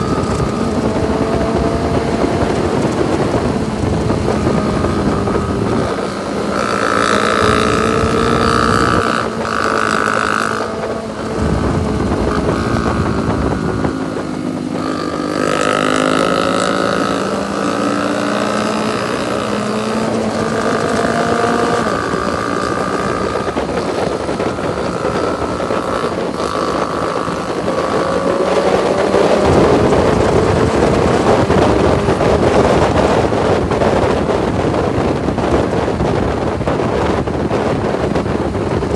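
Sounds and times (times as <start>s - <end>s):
motorcycle engine revving: 0.0s - 38.9s
wind buffeting microphone: 0.0s - 38.9s.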